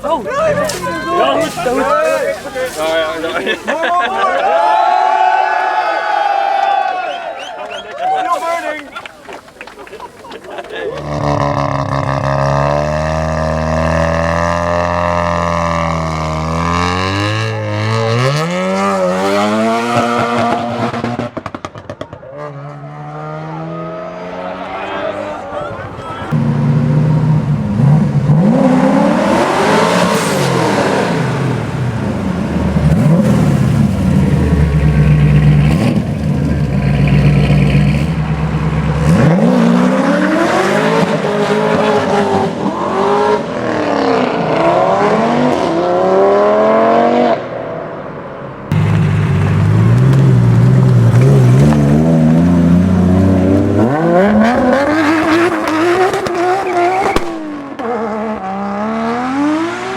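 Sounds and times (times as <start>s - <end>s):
car engines revving and accelerating: 10.7s - 59.9s.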